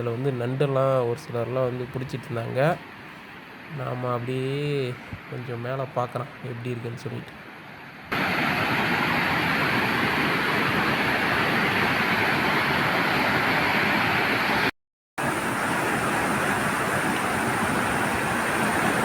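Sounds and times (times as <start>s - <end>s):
waterfall rushing: 8.1s - 19.0s.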